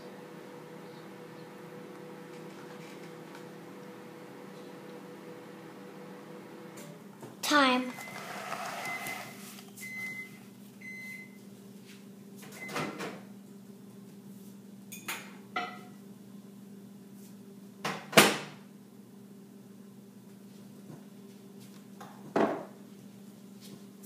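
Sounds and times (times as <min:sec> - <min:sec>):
microwave beeping: 0:00.0 - 0:11.4, 0:12.5 - 0:13.1.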